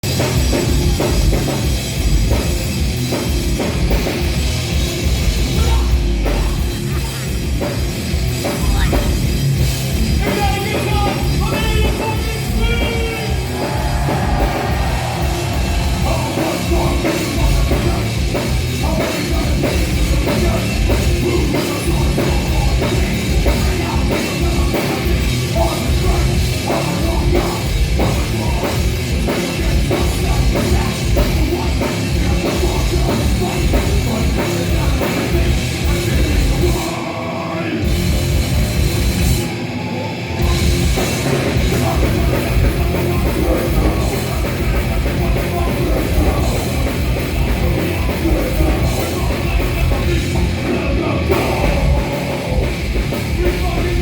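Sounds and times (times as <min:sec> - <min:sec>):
distorted guitars: 0:00.0 - 0:54.0
heavy drum kit: 0:00.0 - 0:54.0
metal band playing: 0:00.0 - 0:54.0
person singing: 0:10.1 - 0:38.0, 0:39.8 - 0:54.0.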